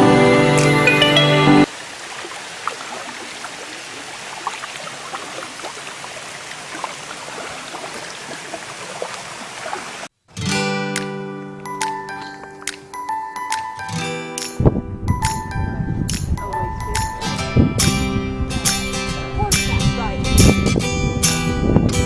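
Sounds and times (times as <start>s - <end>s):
music: 0.0s - 1.7s, 10.4s - 22.0s
water trickling and lapping: 1.7s - 10.1s.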